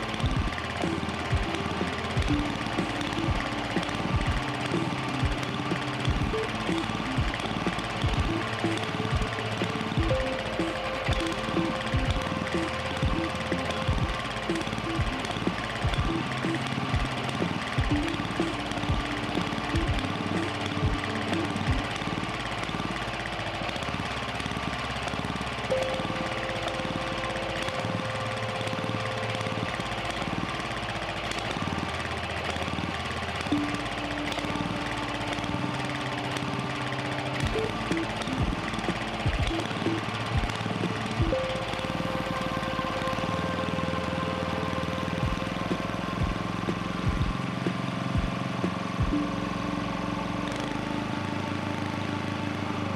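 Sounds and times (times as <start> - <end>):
generator engine running: 0.0 - 52.9
thin steady whine: 0.0 - 52.9.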